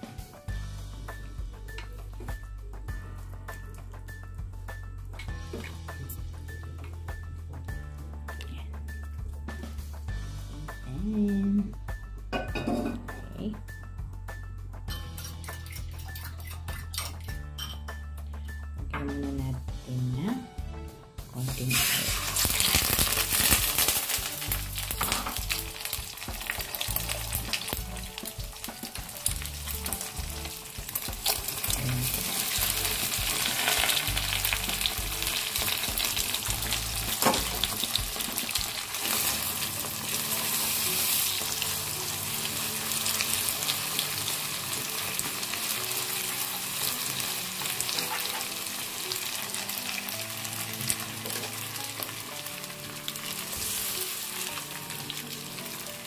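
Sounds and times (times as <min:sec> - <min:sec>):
batter sizzling in hot oil: 0:21.4 - 0:56.0.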